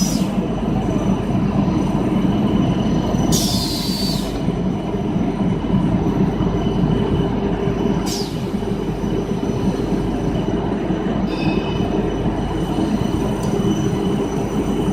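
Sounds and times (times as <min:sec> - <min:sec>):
machine drone with hum: 0:00.0 - 0:14.9
brief high squeak: 0:11.3 - 0:11.8.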